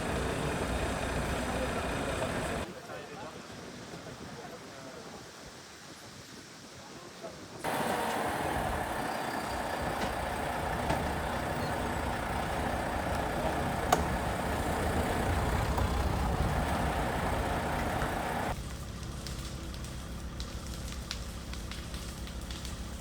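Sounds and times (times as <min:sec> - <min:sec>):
heavy vehicle engine running: 0:00.0 - 0:02.7, 0:07.6 - 0:23.0.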